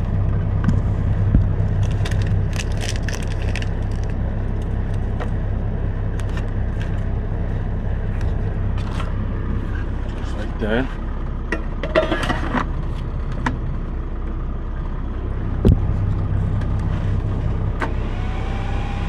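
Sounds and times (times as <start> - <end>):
diesel truck engine idling: 0.0 - 19.0
food packaging crinkling: 1.8 - 5.0.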